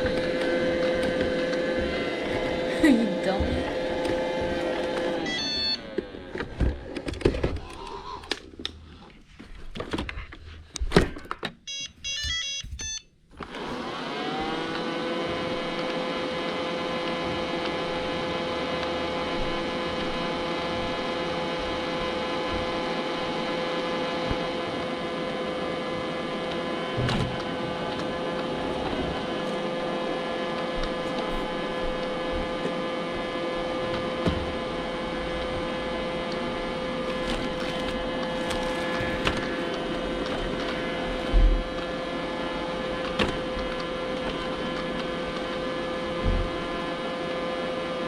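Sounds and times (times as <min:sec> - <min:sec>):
vacuum motor humming: 0:00.0 - 0:08.8, 0:11.7 - 0:48.0
robot vacuum beeping tones: 0:05.2 - 0:06.0, 0:11.7 - 0:13.1
knocks and clicks: 0:10.8 - 0:13.0.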